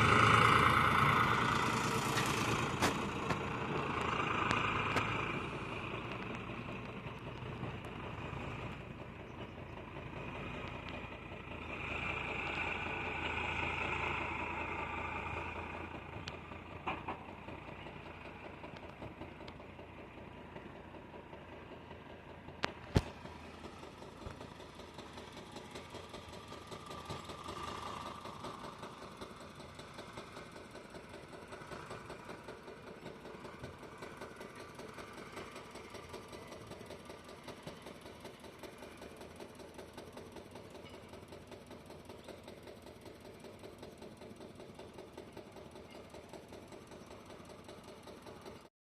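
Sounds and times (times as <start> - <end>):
diesel engine running at low revs: 0.0 - 48.7.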